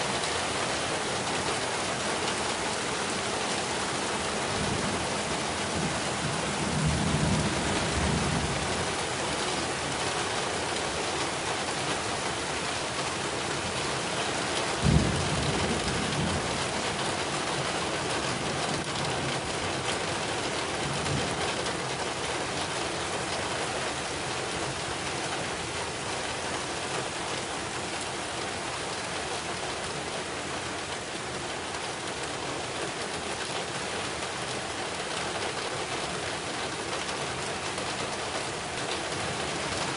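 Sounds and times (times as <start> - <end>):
heavy rain: 0.0 - 39.9
low thunder rumbles: 0.1 - 9.2, 14.8 - 19.5.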